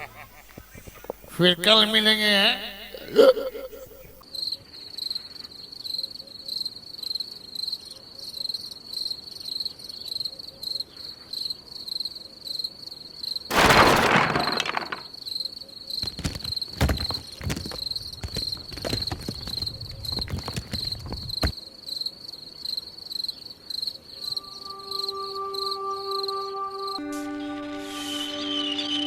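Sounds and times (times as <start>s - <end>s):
crickets chirping: 0.0s - 27.6s
loud bang: 13.5s - 15.0s.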